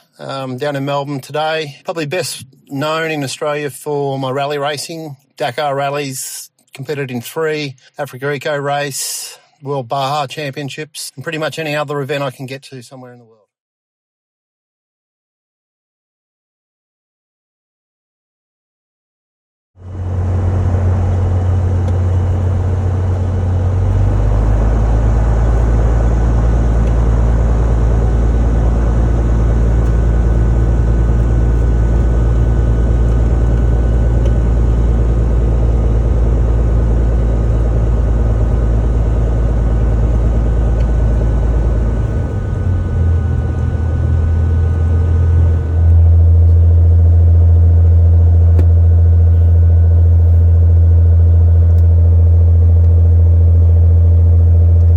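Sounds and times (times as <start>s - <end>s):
vehicle engine drone: 19.8s - 54.9s.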